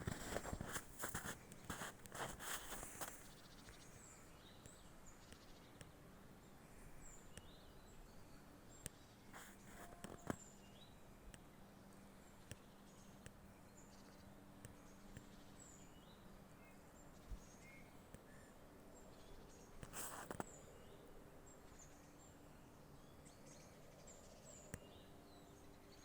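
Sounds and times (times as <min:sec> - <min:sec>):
footsteps on forest path: 0:00.0 - 0:03.3
faint bird chirps: 0:12.0 - 0:26.0.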